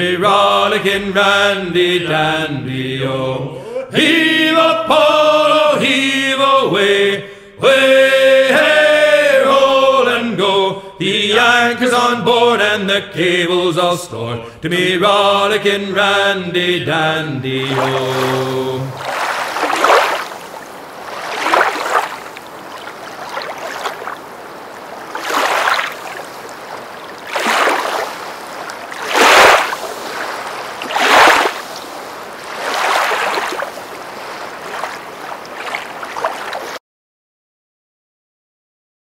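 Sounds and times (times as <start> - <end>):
water washing in waves: 17.5 - 36.8.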